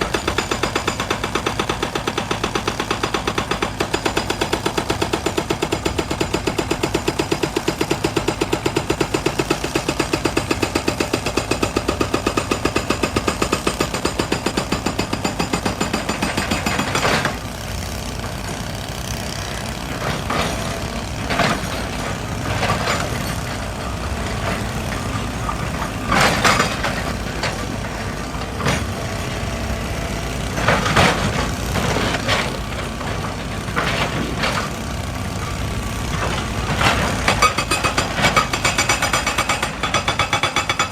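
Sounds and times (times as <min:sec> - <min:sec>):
hydraulic rock breaker hammering: 0:00.0 - 0:40.9
diesel engine running: 0:15.8 - 0:40.0.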